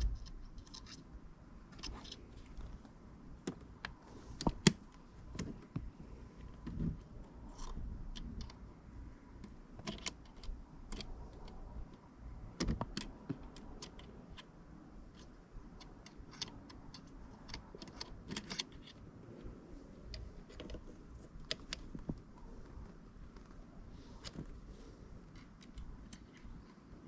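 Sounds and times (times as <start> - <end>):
parts clicking and clattering: 9.4 - 12.0, 12.6 - 23.6, 24.2 - 27.0.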